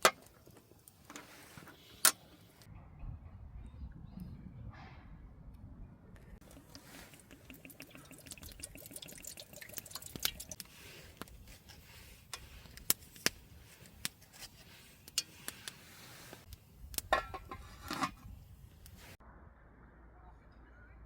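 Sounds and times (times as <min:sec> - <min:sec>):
campfire crackling and popping: 0:00.0 - 0:02.7, 0:06.4 - 0:19.2.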